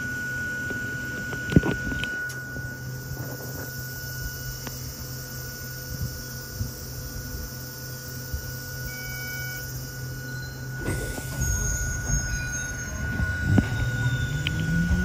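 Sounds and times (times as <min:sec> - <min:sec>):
electric railcar humming: 0:00.0 - 0:15.0
train running noise: 0:04.5 - 0:15.0
high wheel squeal: 0:08.1 - 0:15.0.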